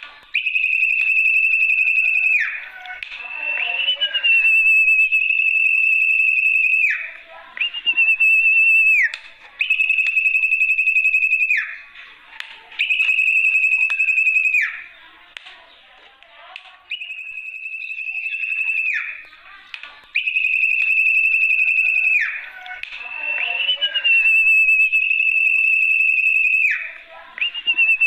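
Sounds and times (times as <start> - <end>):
high wavering whistles: 0.3 - 12.0, 12.8 - 14.9, 16.9 - 19.3, 20.2 - 28.0
soft scratchy chattering: 1.4 - 20.5.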